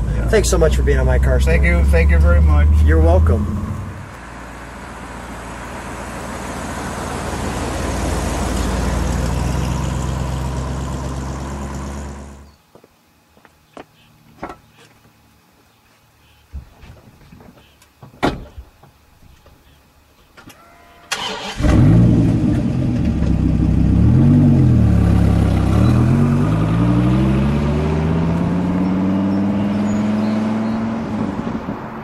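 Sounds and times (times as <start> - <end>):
car engine starting and accelerating: 0.0 - 12.5, 21.1 - 32.0.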